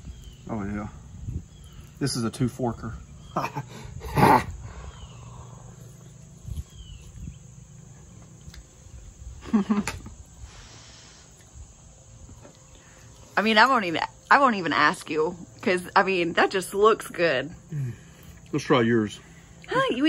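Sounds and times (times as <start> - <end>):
man eating: 3.2 - 13.4, 17.7 - 18.6
man humming mmm: 17.7 - 18.1.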